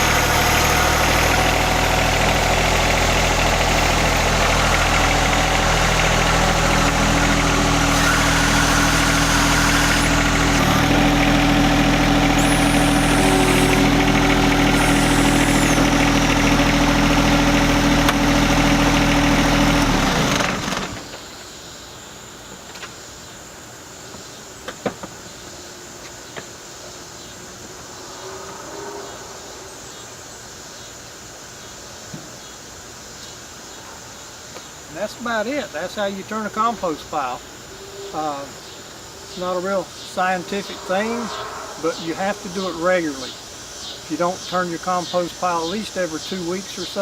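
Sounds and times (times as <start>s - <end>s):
tractor diesel engine running: 0.0s - 21.2s.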